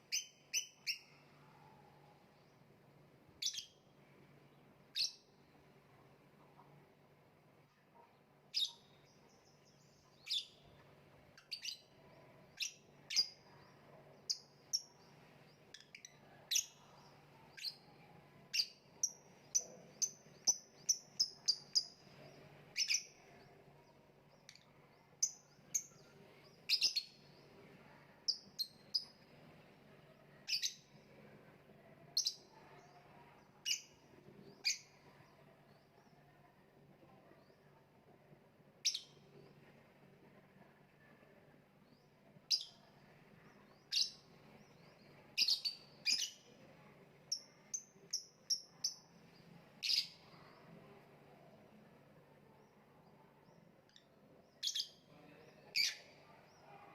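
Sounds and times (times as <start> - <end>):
faint low hum: 0.0 - 56.9
lovebird chirping: 0.1 - 1.6, 3.4 - 3.9, 8.5 - 10.8, 11.4 - 29.4, 30.3 - 30.9, 32.2 - 35.2, 43.6 - 46.5, 47.3 - 50.8, 52.6 - 56.7.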